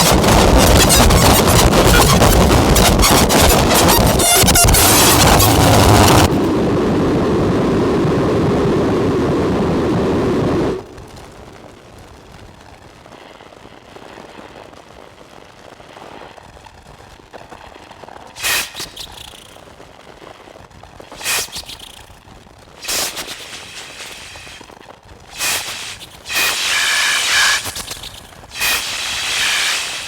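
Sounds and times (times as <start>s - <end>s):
distorted synthesizer noise: 0.0s - 7.5s, 22.8s - 24.6s, 25.3s - 30.0s
hiss with faint crackle: 0.0s - 30.0s.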